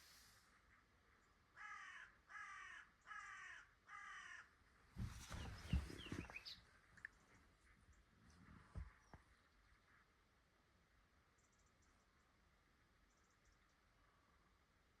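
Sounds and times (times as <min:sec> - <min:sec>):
bird calling: 0:05.0 - 0:06.7.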